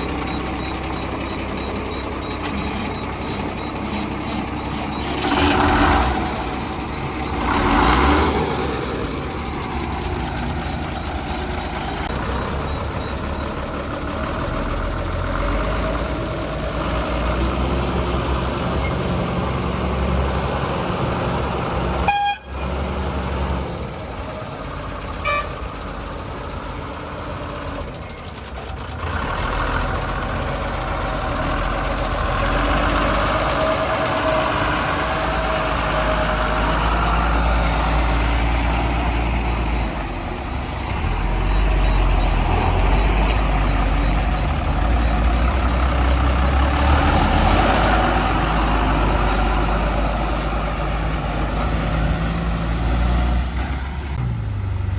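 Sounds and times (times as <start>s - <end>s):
backhoe diesel engine running: 0.0s - 54.9s
horn toot: 22.0s - 22.7s.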